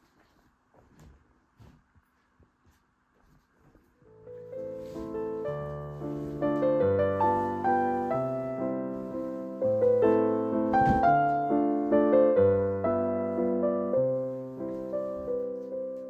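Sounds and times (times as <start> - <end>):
gentle piano music: 4.0 - 16.0.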